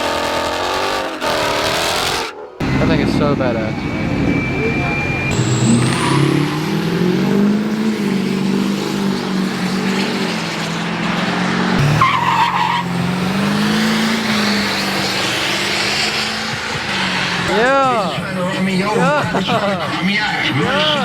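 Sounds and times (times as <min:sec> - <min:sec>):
spinning tyres squealing: 0:00.0 - 0:21.0
truck engine revving high: 0:00.0 - 0:21.0
short higher squeal: 0:00.4 - 0:08.5.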